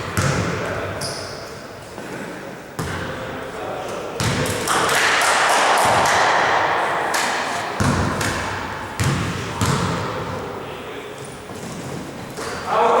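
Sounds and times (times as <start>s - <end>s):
basketball bouncing on court: 0.0s - 0.6s, 2.8s - 3.1s, 4.2s - 4.8s, 7.1s - 10.4s
loud noise: 4.9s - 9.6s.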